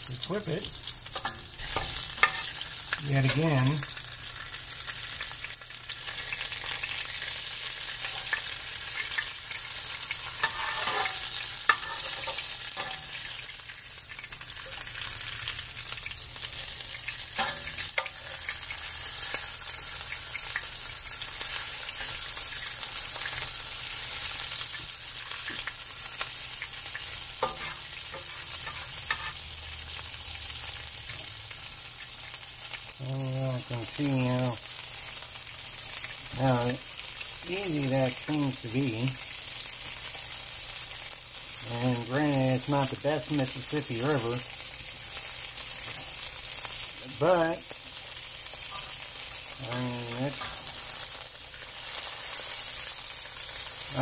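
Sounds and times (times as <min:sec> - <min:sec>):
pork chop sizzling in a skillet: 0:00.0 - 0:54.0
metal spatula scraping a pan: 0:01.1 - 0:03.8, 0:08.0 - 0:13.4, 0:16.4 - 0:20.1, 0:26.9 - 0:29.9, 0:48.5 - 0:51.2.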